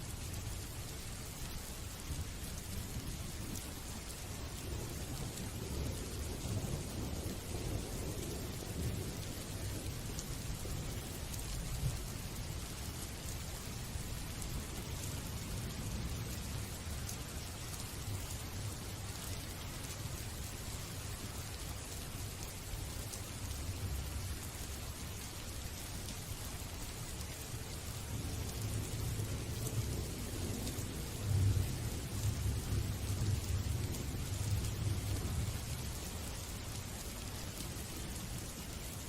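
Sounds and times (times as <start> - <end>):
steady rain: 0.0 - 39.0
low rumble of thunder: 2.0 - 19.2, 27.5 - 36.7.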